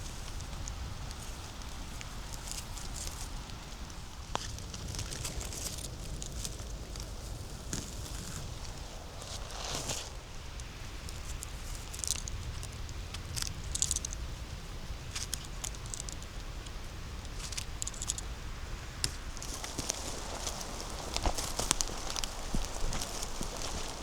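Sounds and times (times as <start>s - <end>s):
footsteps on dry leaves and twigs: 0.0s - 10.5s, 19.0s - 24.0s
steady low rumble: 16.3s - 24.0s.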